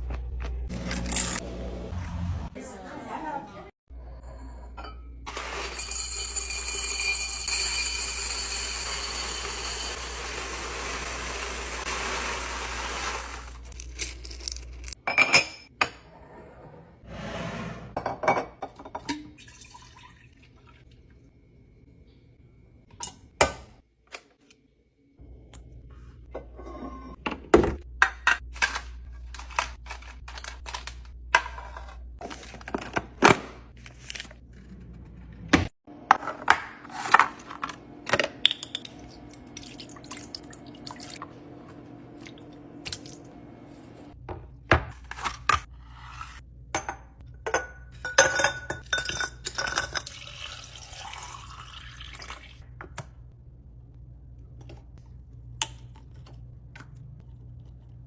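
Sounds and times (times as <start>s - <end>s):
household items clicking and clattering: 28.1s - 35.0s.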